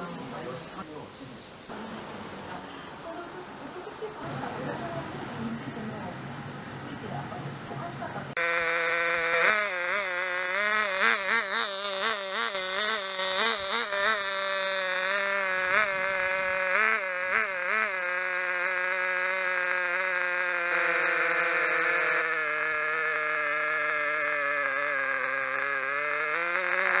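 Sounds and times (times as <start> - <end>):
small model engine revving: 8.4 - 27.0.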